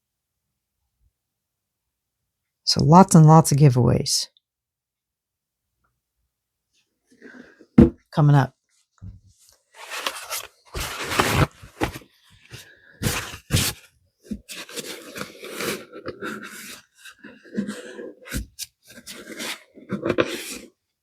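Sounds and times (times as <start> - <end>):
cups and tools handled on table: 9.8 - 20.7.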